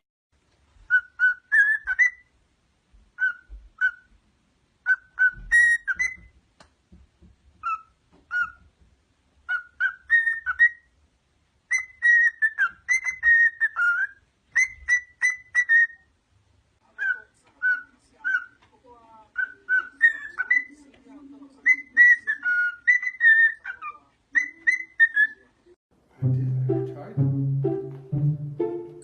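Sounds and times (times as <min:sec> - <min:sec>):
parrot whistling: 0:00.9 - 0:02.3, 0:04.8 - 0:06.3, 0:09.5 - 0:10.9, 0:11.7 - 0:16.1, 0:21.7 - 0:25.4.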